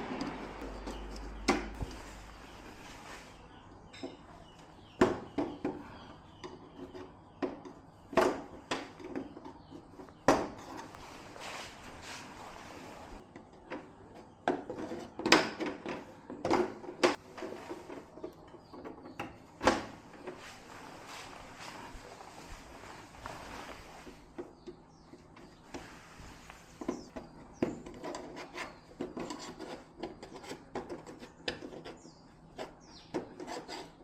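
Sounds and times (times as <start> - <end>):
light rubbing and scraping: 0.0 - 3.6, 8.8 - 13.2, 14.6 - 15.2, 20.1 - 34.0.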